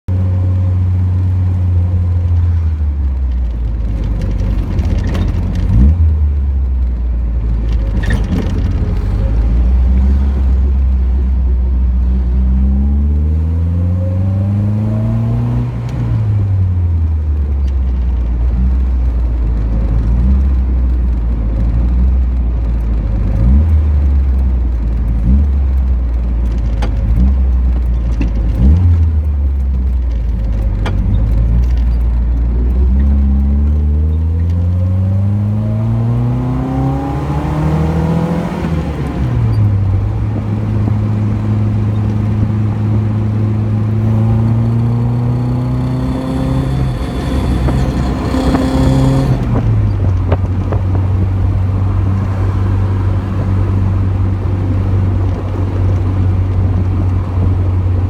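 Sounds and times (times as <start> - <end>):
car engine running: 0.1 - 13.0, 13.7 - 58.0
engine revving blips: 43.8 - 50.1.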